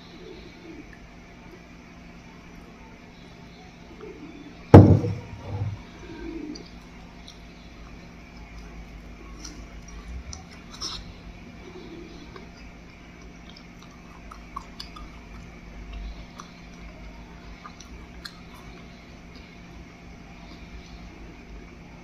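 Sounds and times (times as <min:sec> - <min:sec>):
faint steady hum: 0:00.0 - 0:22.0
person chewing: 0:06.6 - 0:11.1, 0:12.2 - 0:16.9, 0:17.5 - 0:19.6
wet mouth clicks: 0:12.3 - 0:16.8, 0:17.6 - 0:19.5.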